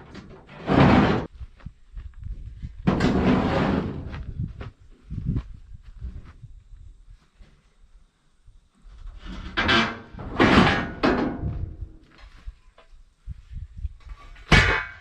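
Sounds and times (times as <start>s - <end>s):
heavy metal scraping thuds: 0.0s - 1.3s, 2.8s - 4.5s, 9.1s - 12.0s.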